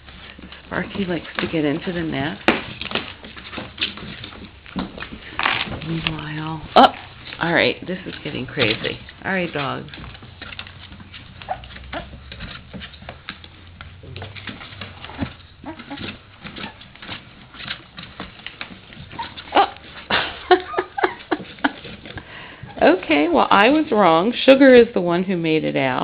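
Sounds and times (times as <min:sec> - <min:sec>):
puppies scrabbling and scratching: 0:00.0 - 0:26.0
puppies whimpering and squeaking: 0:06.2 - 0:22.8.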